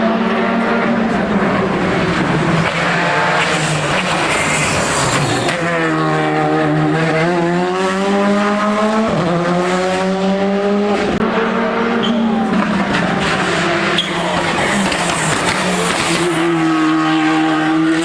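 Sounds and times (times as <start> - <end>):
race car engine revving: 0.0 - 18.0.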